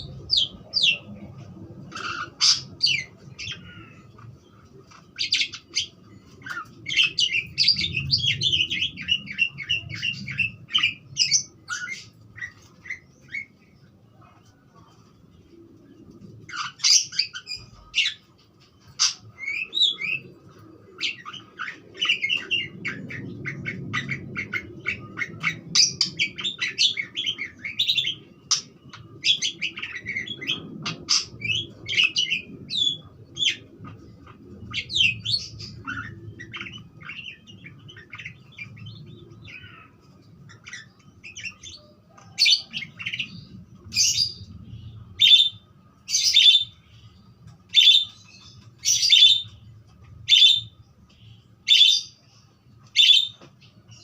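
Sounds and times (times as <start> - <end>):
budgerigar chattering and warbling: 1.9 - 4.0.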